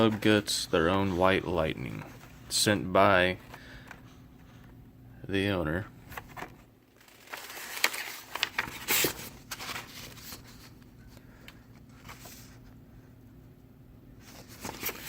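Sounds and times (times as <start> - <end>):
faint steady hum: 0.0 - 15.0
packaging rustling and clicking: 6.2 - 10.8.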